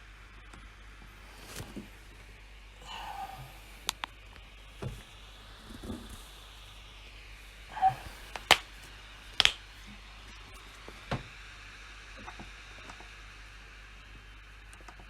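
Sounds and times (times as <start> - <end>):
steady low hum: 0.3 - 11.2.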